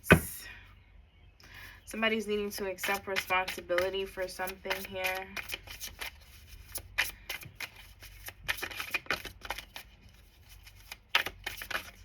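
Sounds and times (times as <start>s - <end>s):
cards being shuffled by hand: 2.8s - 12.0s.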